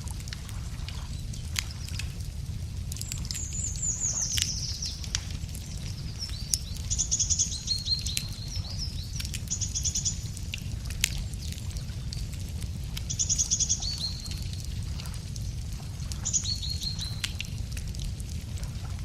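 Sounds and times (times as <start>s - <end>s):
campfire crackling and popping: 0.0s - 19.0s
steady low rumble: 0.0s - 19.0s
songbirds trilling: 3.0s - 10.6s, 13.0s - 17.4s.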